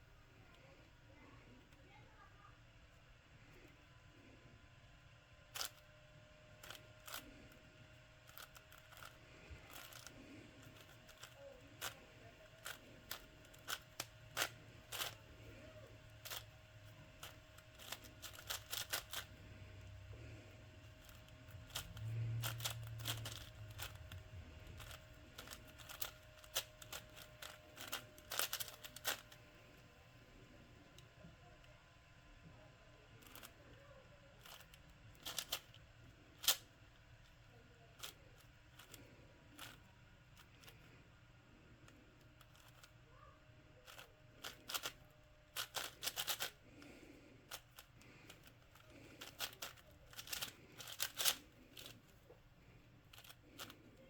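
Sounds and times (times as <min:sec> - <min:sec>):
faint steady hum: 0:00.0 - 0:54.0
puzzle cube clicking: 0:06.6 - 0:07.3, 0:08.2 - 0:20.0, 0:20.8 - 0:29.4, 0:34.4 - 0:35.8, 0:36.4 - 0:36.7, 0:43.9 - 0:52.0.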